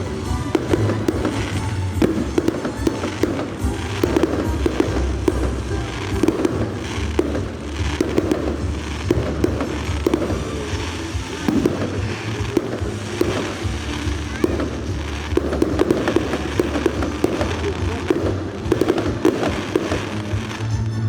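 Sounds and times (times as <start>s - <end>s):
fireworks bangs and pops: 0.0s - 21.0s.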